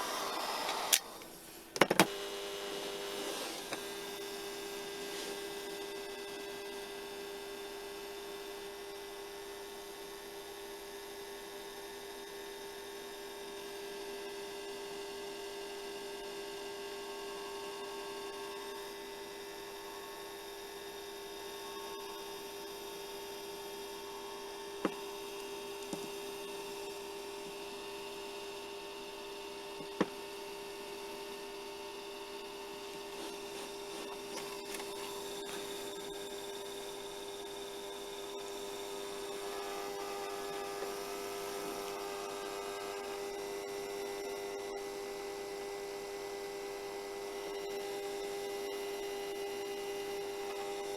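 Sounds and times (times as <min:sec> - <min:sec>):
hair dryer running: 0:00.0 - 0:04.1, 0:33.0 - 0:36.3.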